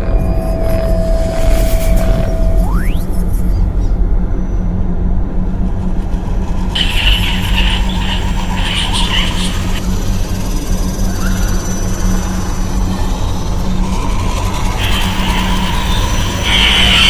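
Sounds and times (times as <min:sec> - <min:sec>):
short rising tone: 0:00.0 - 0:03.5
high squealing chatter: 0:06.7 - 0:17.0.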